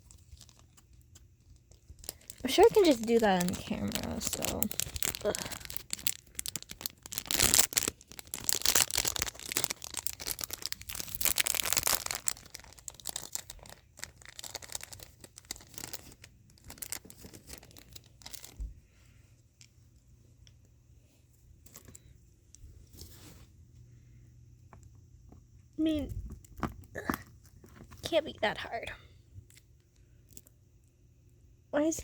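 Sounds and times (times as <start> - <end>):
packaging crackling: 0.0 - 18.6.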